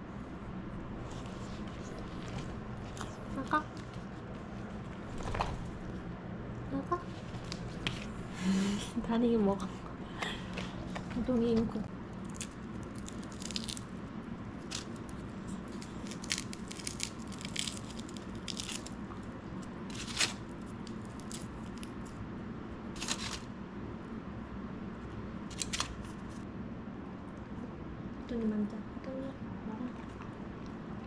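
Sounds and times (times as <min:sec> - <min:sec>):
low hum: 0:00.0 - 0:31.0
dog crunching food: 0:12.1 - 0:22.2
tearing sounds: 0:12.2 - 0:13.9, 0:14.6 - 0:19.0, 0:19.9 - 0:22.2, 0:23.0 - 0:23.5, 0:25.5 - 0:26.4.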